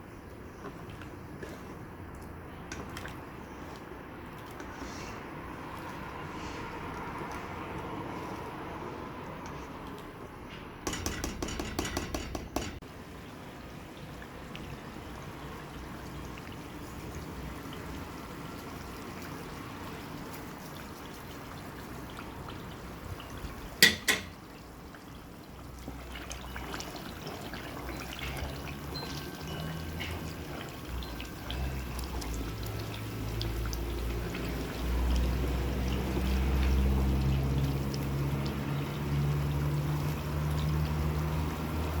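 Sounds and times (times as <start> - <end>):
sharp knocks: 10.8 - 12.8.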